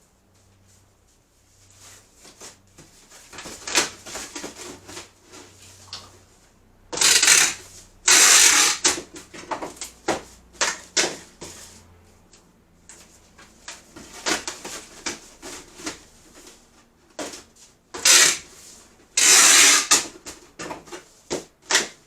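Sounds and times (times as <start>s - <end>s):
rustling and clattering: 0.2s - 6.6s, 12.8s - 17.9s.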